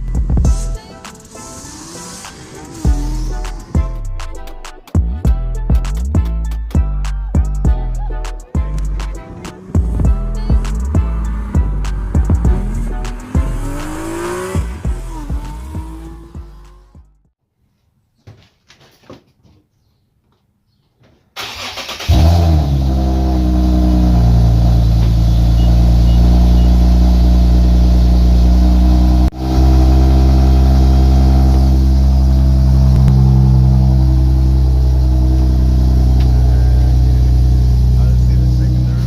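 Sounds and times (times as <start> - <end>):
car engine idling: 7.3 - 17.2, 21.4 - 39.0
car starter cranking: 21.4 - 22.9.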